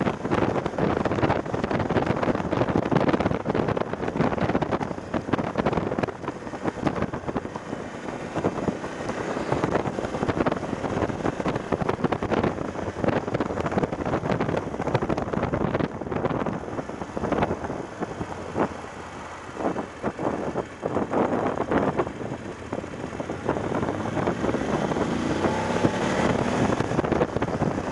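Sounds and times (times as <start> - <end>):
motorcycle engine running: 0.0 - 27.9
wind buffeting microphone: 0.0 - 27.9.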